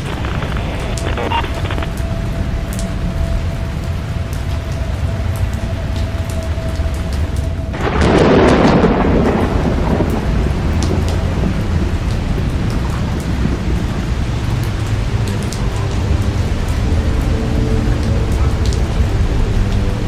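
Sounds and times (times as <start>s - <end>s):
raindrop clicks: 0.0s - 2.1s
steady rain: 0.0s - 20.0s
thunderclap: 7.7s - 15.5s.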